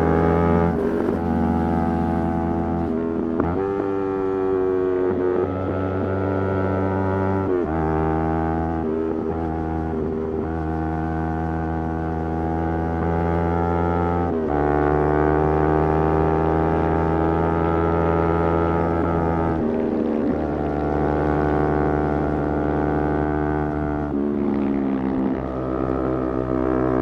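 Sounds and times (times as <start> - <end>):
motorcycle engine changing gears: 0.0 - 4.7.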